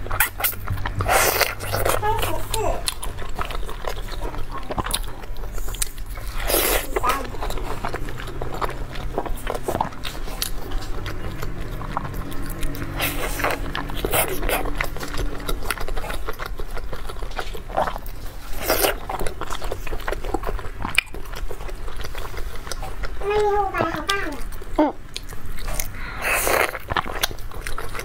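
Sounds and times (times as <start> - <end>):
slurps: 0.0 - 3.0, 5.3 - 16.3, 25.6 - 28.0
wet chewing and lip smacking: 0.0 - 28.0.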